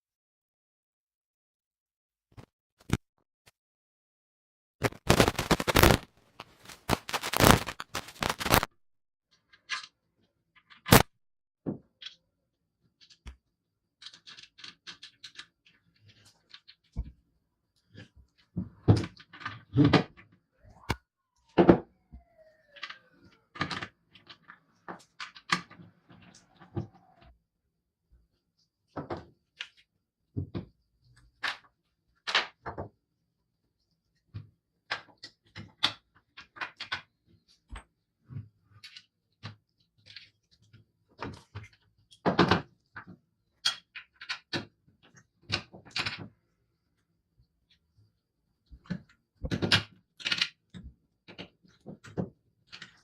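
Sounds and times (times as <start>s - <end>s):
faint falling squeaks: 20.7s - 23.6s.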